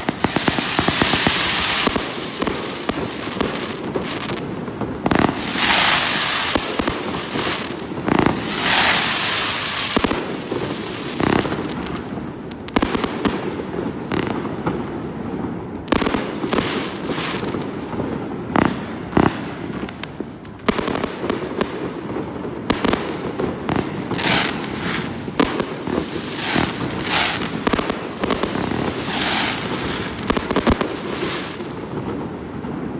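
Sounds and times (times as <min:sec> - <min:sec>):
firework hissing spray: 0:00.0 - 0:04.2, 0:05.3 - 0:11.2, 0:26.0 - 0:30.6
fireworks launching and bursting: 0:00.0 - 0:32.9.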